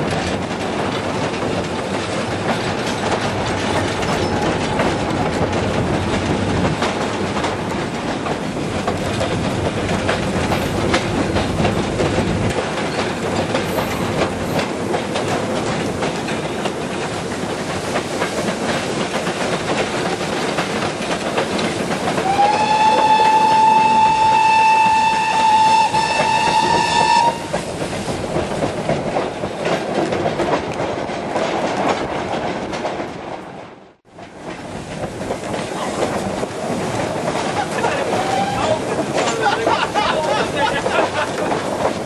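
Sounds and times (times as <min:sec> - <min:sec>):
train wagons rattling: 0:00.0 - 0:42.0
wheels clacking over rail joints: 0:00.0 - 0:42.0
steam locomotive whistle: 0:22.2 - 0:27.6, 0:38.1 - 0:38.8.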